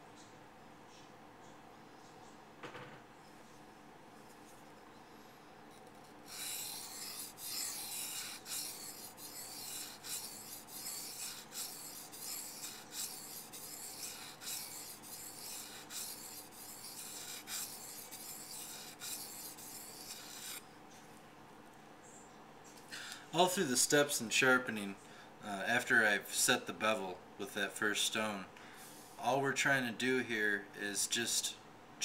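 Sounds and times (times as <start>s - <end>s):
knife scraping on whetstone: 6.2s - 20.6s.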